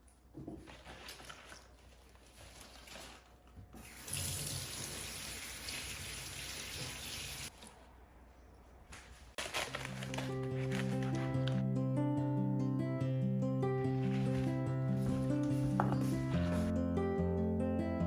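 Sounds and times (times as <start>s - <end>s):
tap water running into sink: 3.8s - 7.5s.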